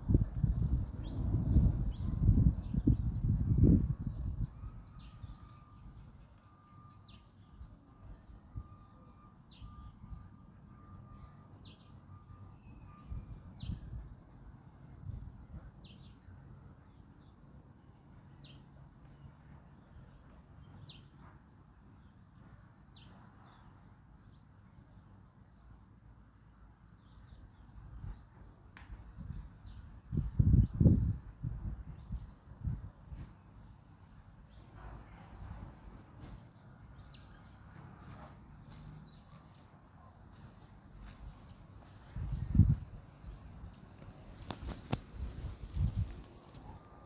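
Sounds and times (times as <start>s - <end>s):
low wind rumble: 0.0s - 8.8s, 27.8s - 33.4s, 40.8s - 47.0s.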